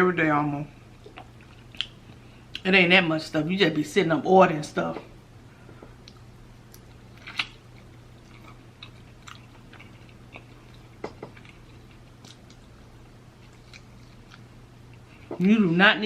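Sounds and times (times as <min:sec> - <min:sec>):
steady low hum: 0:00.0 - 0:16.0
soft chewing: 0:00.8 - 0:02.7, 0:05.4 - 0:15.5.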